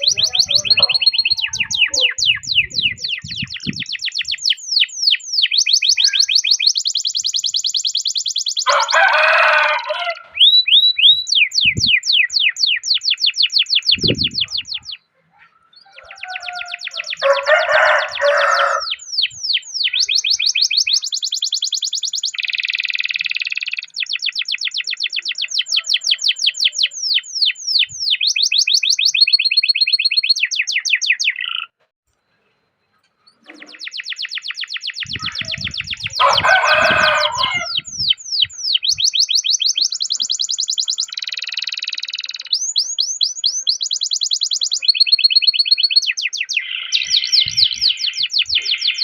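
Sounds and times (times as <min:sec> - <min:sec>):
canary singing trills: 0:00.0 - 0:31.8, 0:33.1 - 0:49.0.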